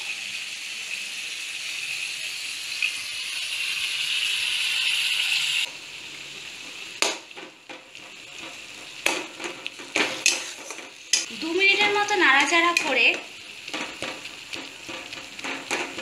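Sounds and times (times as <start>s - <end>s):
food sizzling in hot oil: 0.0s - 16.0s
metal spatula scraping a pan: 8.0s - 16.0s.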